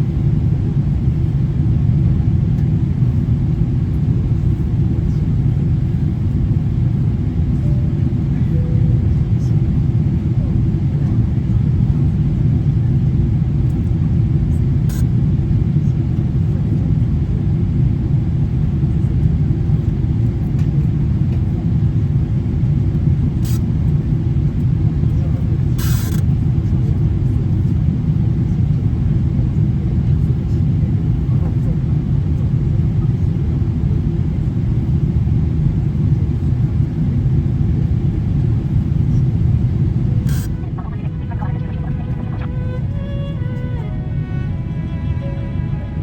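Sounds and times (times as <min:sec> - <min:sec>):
airliner cabin rumble: 0:00.0 - 0:46.0.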